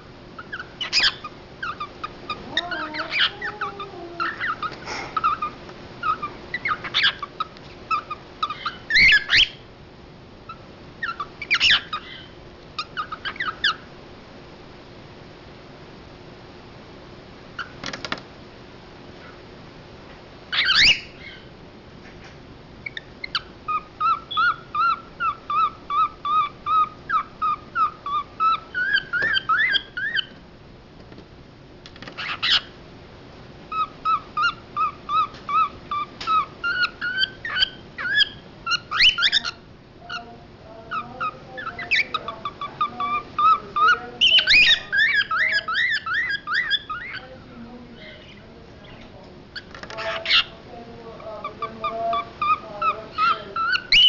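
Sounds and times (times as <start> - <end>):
cockatiel shrill calls: 0.4 - 9.6, 11.0 - 13.8, 20.5 - 21.4, 22.9 - 30.4, 32.2 - 32.7, 33.7 - 39.6, 42.8 - 47.2
cockatiel whistled chirps: 7.9 - 9.6.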